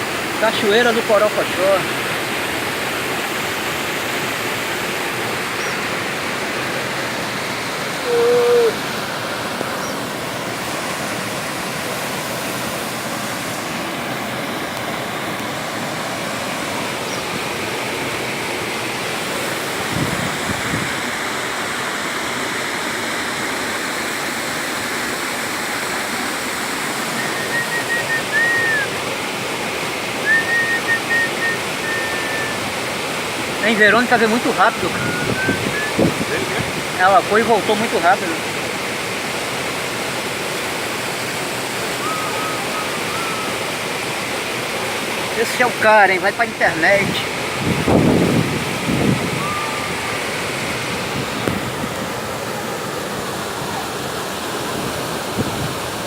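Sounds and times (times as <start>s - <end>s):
waterfall rushing: 0.0s - 56.0s
faint high tones: 8.0s - 8.8s.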